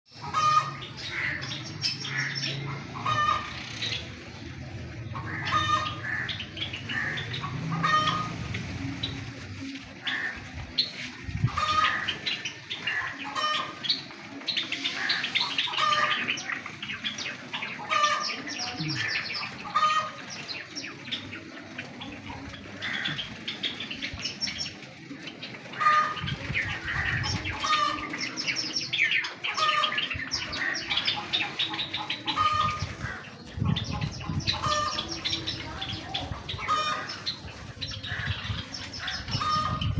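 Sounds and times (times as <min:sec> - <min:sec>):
sparrows chirping: 0:00.1 - 0:39.9
wings fluttering: 0:04.0 - 0:28.4.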